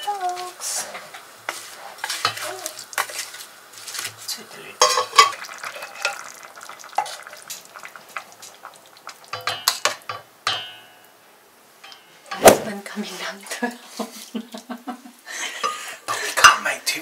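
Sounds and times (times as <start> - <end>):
light sizzle: 0.0 - 17.0
utensil scraping and knocking pan: 0.8 - 4.2.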